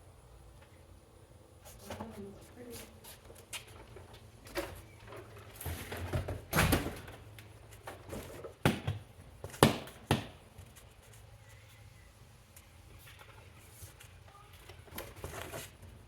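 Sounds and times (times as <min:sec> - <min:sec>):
rustling of boxes: 0:01.7 - 0:08.8, 0:13.0 - 0:16.0.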